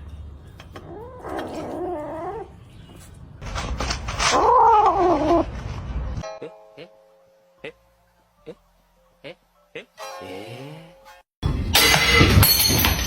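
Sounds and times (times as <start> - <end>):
cat yowling: 0.8 - 2.5, 4.3 - 5.5.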